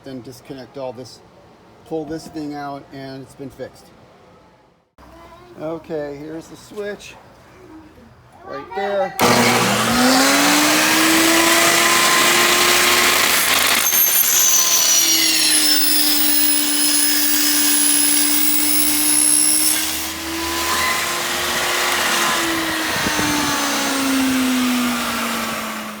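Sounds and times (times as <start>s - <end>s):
table saw motor whine: 9.2s - 26.0s.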